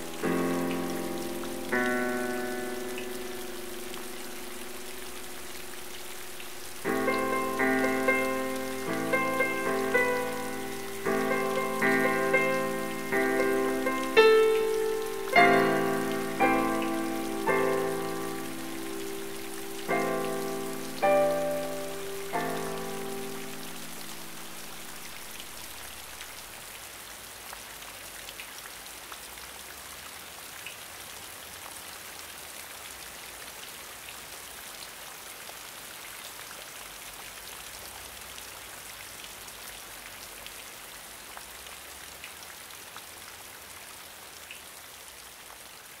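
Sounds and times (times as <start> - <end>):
water drips: 0.0 - 26.6
rain falling on a pond: 0.0 - 46.0.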